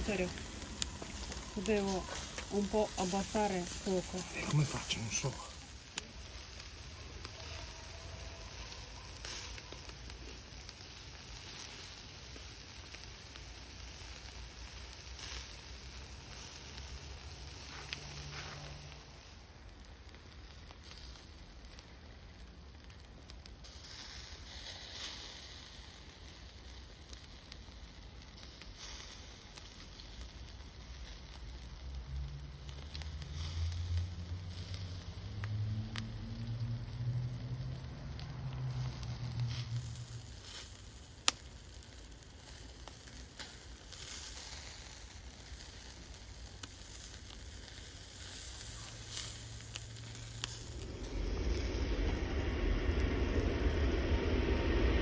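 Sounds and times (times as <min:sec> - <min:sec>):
low rumble: 0:00.0 - 0:04.7, 0:31.8 - 0:40.3, 0:48.9 - 0:55.0
food sizzling in a pan: 0:00.0 - 0:22.7, 0:23.6 - 0:55.0
fire crackles: 0:00.0 - 0:55.0.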